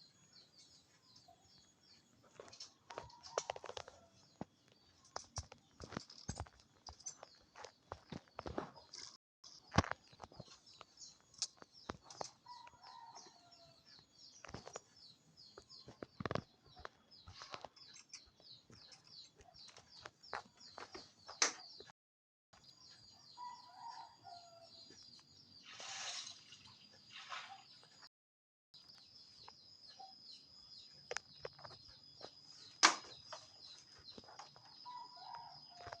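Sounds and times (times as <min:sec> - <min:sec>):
birds chirping: 0:28.8 - 0:36.0.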